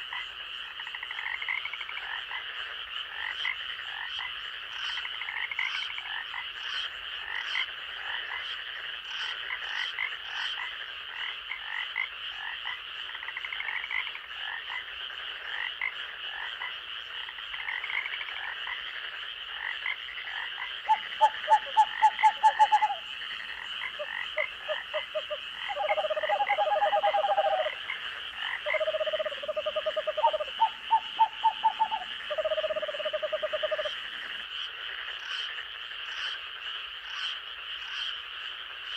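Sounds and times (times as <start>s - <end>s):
frog calls in pulsed trains: 0.0s - 38.9s
high insect drone: 21.1s - 34.5s
short chirping calls: 28.7s - 33.9s.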